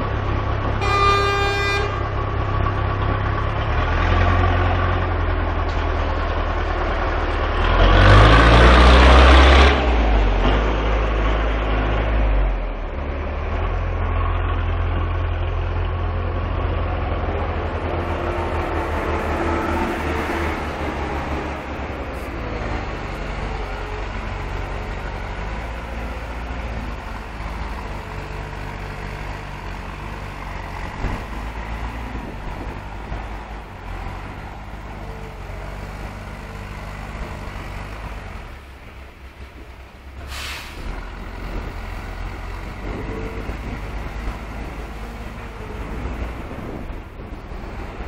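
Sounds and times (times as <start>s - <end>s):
heavy diesel engines running: 0.0s - 48.0s
air hiss: 40.3s - 40.9s.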